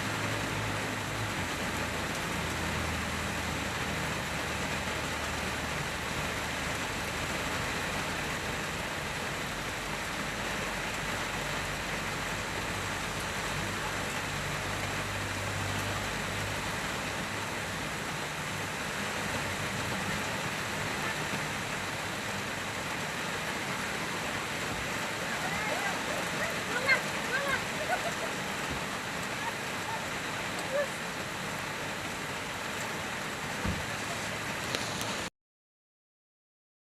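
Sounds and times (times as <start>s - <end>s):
rain on car windscreen: 0.0s - 35.3s.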